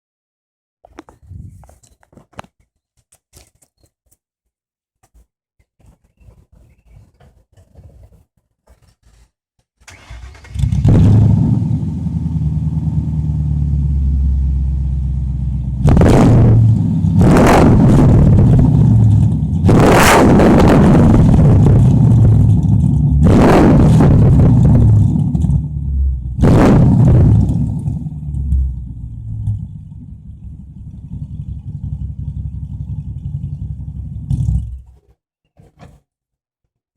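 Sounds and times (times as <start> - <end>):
loud car engine idling and revving: 10.4 - 34.9.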